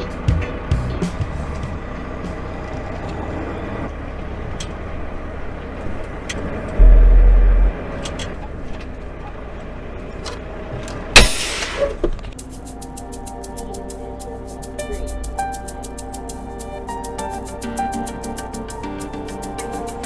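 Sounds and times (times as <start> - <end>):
vehicle road and engine noise: 0.0 - 11.2
loud deep rumble: 6.7 - 8.0.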